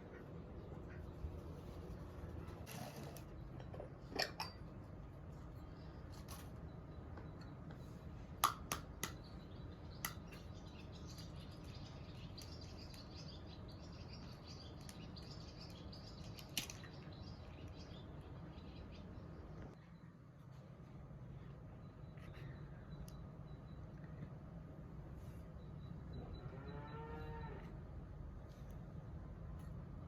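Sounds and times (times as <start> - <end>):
faint bird chirping: 9.1 - 30.0.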